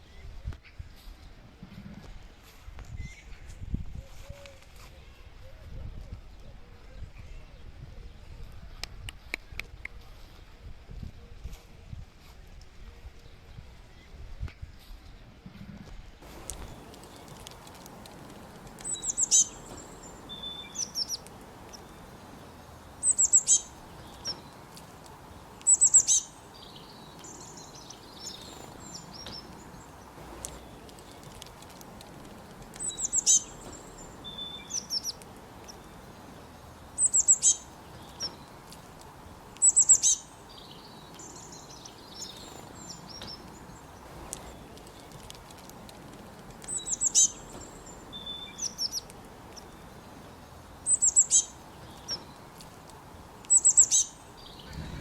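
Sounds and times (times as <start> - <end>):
faint background hiss: 0.0 - 55.0
songbird singing: 16.2 - 55.0.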